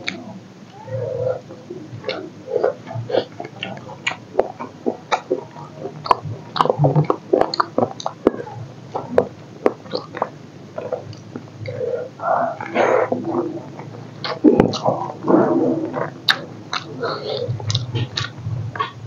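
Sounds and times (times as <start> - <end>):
wet chewing with lip smacks: 17.6 - 19.0.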